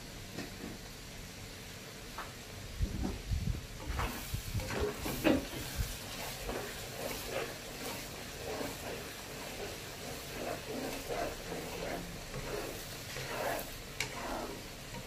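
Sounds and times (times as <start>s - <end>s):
spatula scraping fish in a pan: 3.9s - 15.0s.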